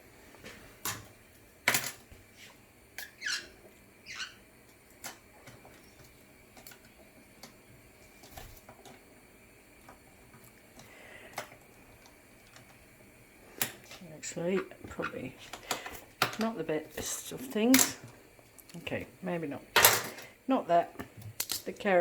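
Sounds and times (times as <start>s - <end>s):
parrot chirping: 3.0s - 4.4s.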